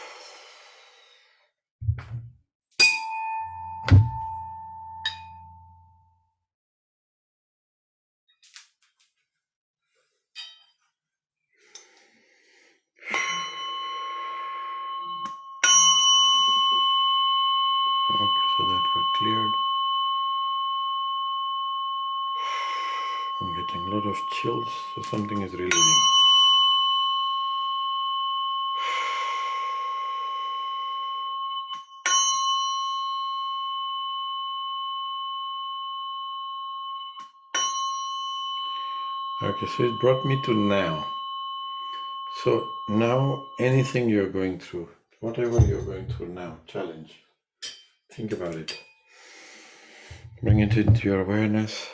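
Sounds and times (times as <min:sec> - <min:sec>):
bell-toned instrument ringing: 0:13.1 - 0:46.6.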